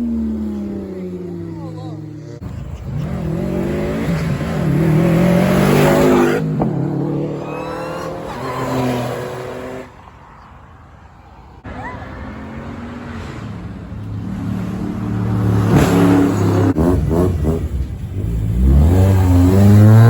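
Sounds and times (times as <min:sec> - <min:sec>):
car engine revving hard: 0:02.9 - 0:07.8, 0:14.5 - 0:20.0.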